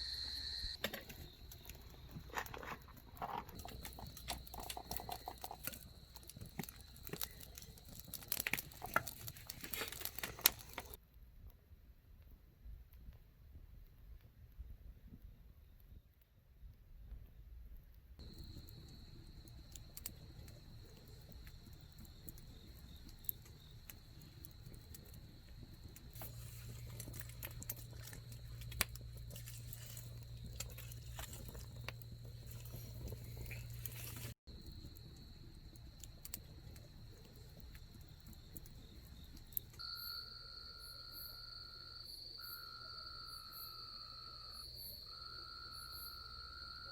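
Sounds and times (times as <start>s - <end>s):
campfire crackling: 0.0s - 11.0s, 18.2s - 40.3s
crickets trilling: 0.0s - 11.0s, 18.2s - 46.9s
lower insect trill: 0.0s - 11.0s, 18.2s - 46.9s.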